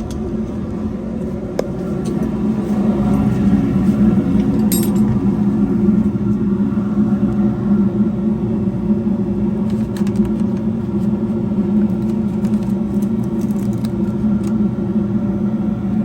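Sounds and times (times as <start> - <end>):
furnace burners humming: 0.0 - 16.0.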